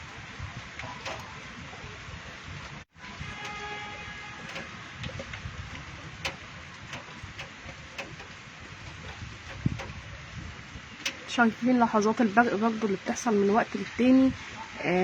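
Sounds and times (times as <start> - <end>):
rain hissing: 0.0 - 14.6
wind: 0.0 - 15.0
small ticks: 3.4 - 10.3.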